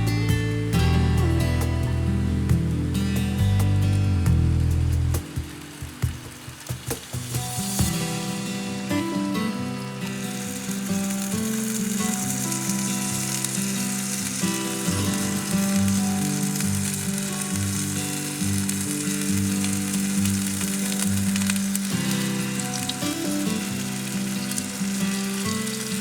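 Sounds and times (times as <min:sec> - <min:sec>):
background music of held chords: 0:00.0 - 0:10.2
bacon sizzling: 0:00.2 - 0:26.0.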